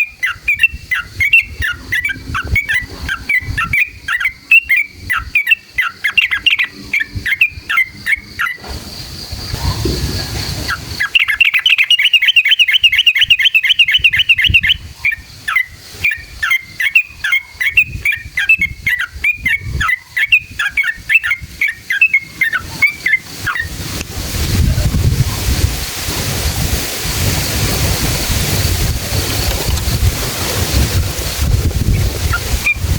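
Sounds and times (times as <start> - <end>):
bird singing chattering phrases: 0.0 - 8.6, 9.5 - 23.8
bird rapid trill: 0.0 - 23.8
rushing noise: 22.2 - 32.9.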